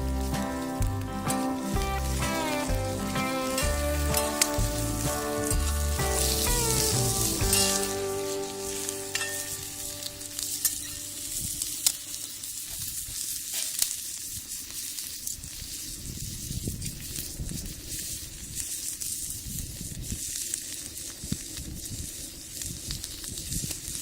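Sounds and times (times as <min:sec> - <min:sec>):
background music: 0:00.0 - 0:10.7
food sizzling with pops: 0:00.0 - 0:24.0.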